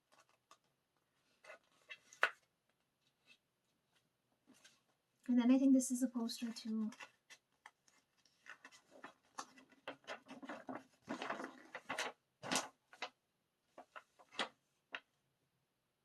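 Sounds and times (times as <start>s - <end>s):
paper rustling and crinkling: 0.0s - 5.0s, 6.3s - 15.1s.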